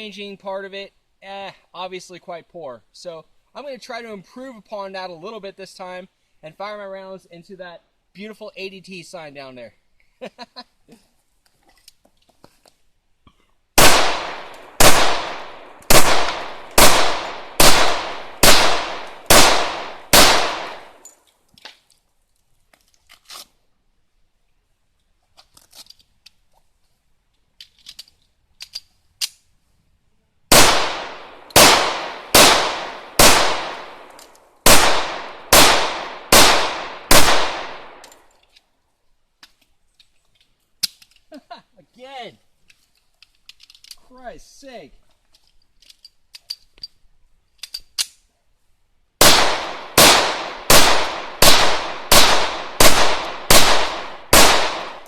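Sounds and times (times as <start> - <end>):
pistol shots: 13.8 - 21.0, 30.5 - 38.1, 49.2 - 55.0.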